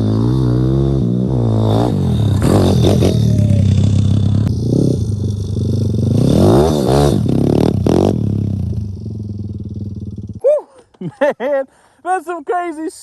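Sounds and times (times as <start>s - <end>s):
motorbike engine revving: 0.0s - 10.4s.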